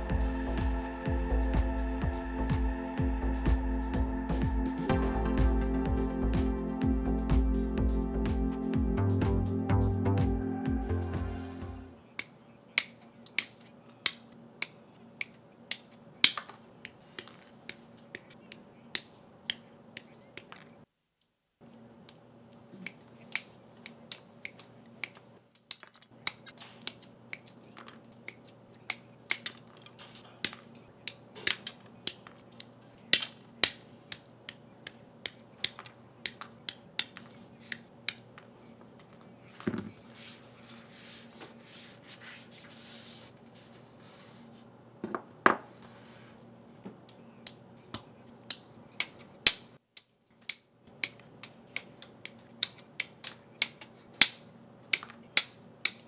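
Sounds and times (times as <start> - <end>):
faint steady hum: 0.0 - 56.0
plastic clicks and snaps: 12.2 - 38.5.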